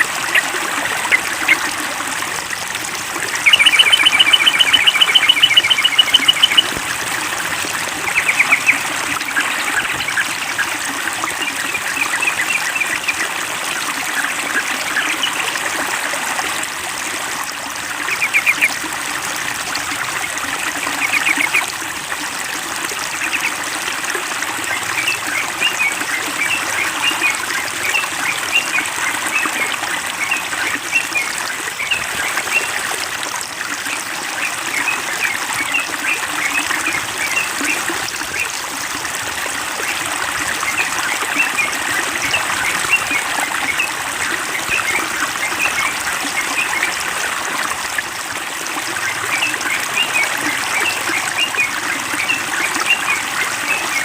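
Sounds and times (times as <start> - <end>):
trickling water: 0.0 - 54.0
bird chirping: 3.4 - 6.7.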